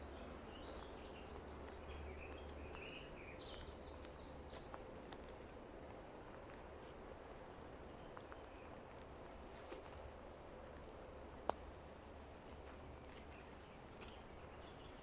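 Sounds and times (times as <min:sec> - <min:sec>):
forest background hiss: 0:00.0 - 0:04.8, 0:05.4 - 0:15.0.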